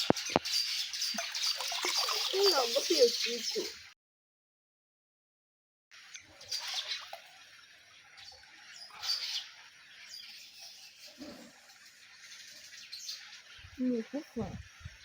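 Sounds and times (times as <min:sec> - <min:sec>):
birds chirping: 0:00.0 - 0:03.9, 0:08.0 - 0:15.0.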